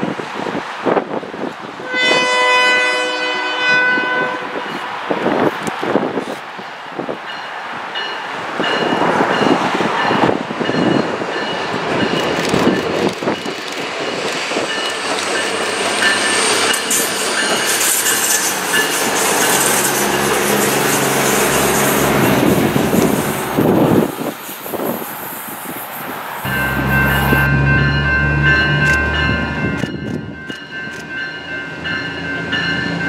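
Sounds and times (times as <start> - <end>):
train wheels rumbling on track: 4.3 - 33.0
diesel engine hum: 26.4 - 30.4
high-pitched wheel tones: 26.4 - 30.4.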